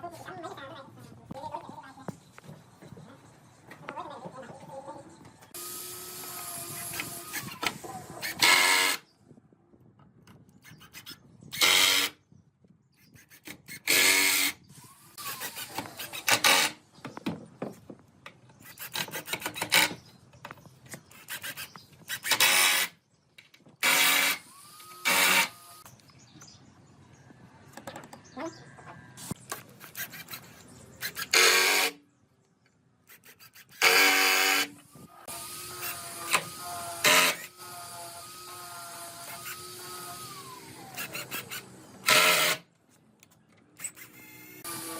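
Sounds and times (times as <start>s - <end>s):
hand tool rasping wood: 33.1s - 34.7s.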